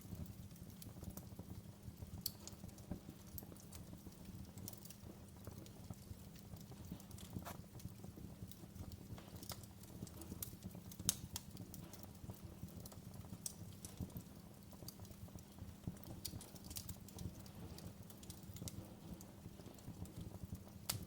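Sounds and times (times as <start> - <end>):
fire flames rumbling: 0.0 - 21.0
wood fire pops and snaps: 0.0 - 21.0.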